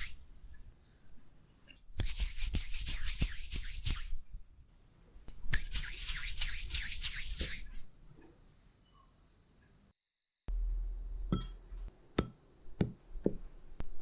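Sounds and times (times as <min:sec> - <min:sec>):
sticky mixture being rubbed: 0:05.6 - 0:07.8.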